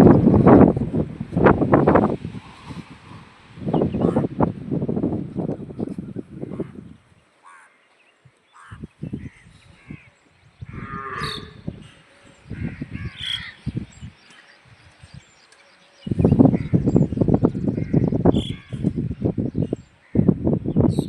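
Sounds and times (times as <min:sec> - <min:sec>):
crow caws: 0:07.4 - 0:07.9, 0:08.5 - 0:08.8, 0:12.6 - 0:13.6
cattle mooing: 0:10.7 - 0:11.7.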